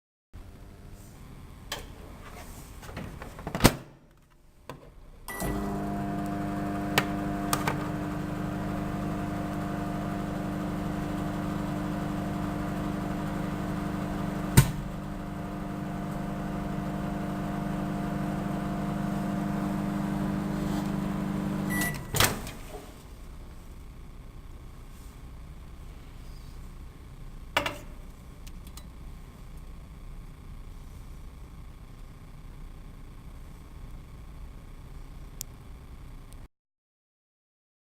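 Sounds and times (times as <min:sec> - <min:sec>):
microwave beep: 0:05.3 - 0:14.6, 0:18.0 - 0:22.2
microwave oven humming: 0:05.3 - 0:24.8
microwave clicks: 0:05.4 - 0:08.2, 0:14.4 - 0:15.0.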